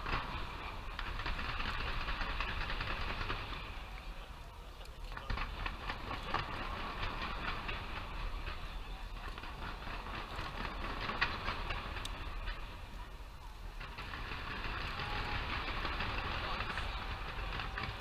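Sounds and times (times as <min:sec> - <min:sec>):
firework bang: 0:00.0 - 0:04.3, 0:05.1 - 0:18.0
fireworks crackling and popping: 0:00.0 - 0:18.0.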